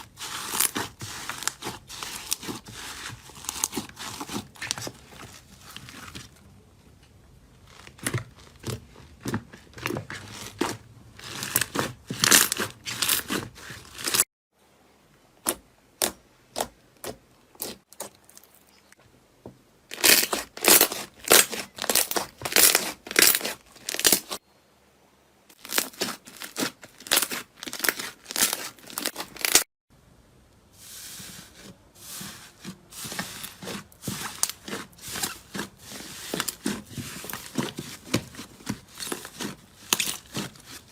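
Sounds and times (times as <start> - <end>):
crunchy slime crackling: 0.0 - 6.5, 7.6 - 14.2, 19.9 - 24.4, 25.5 - 29.7, 33.0 - 40.9.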